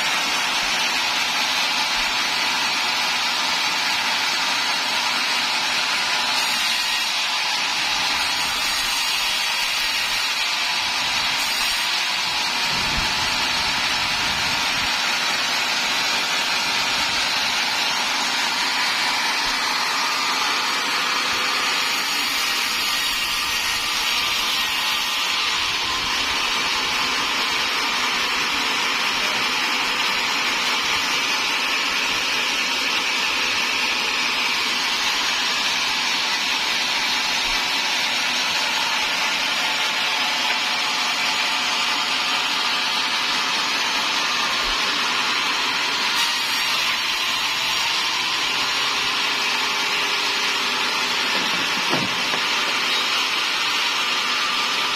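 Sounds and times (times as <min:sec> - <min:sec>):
sawmill saw cutting timber: 0:00.0 - 0:54.9.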